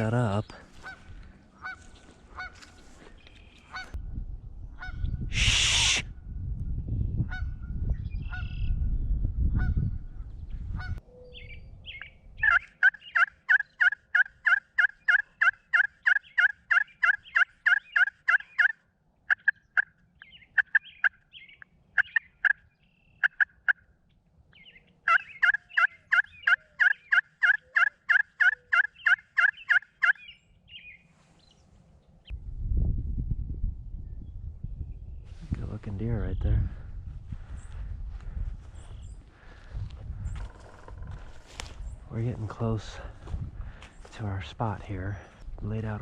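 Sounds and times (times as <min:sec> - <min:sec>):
bird calling in sharp notes: 0:11.1 - 0:23.9, 0:24.5 - 0:31.0.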